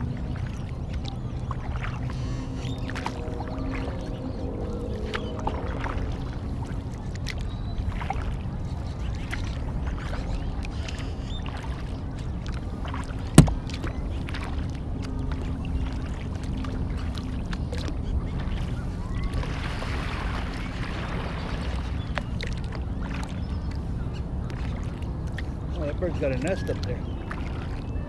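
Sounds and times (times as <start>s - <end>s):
steady low rumble: 0.0s - 26.1s
paddle splashing water: 0.0s - 28.0s
sharp knock: 13.4s - 13.6s.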